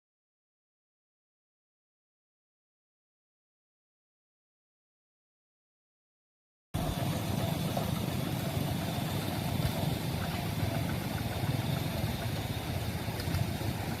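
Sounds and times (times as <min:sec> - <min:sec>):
low engine rumble: 0:06.8 - 0:14.0.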